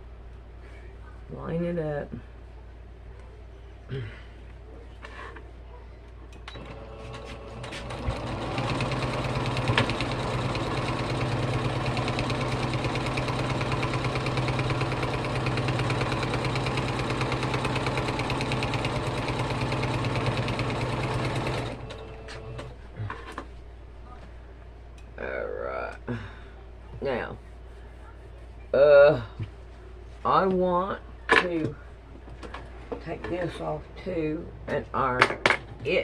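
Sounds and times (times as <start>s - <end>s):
sewing machine stitching: 6.5s - 22.7s.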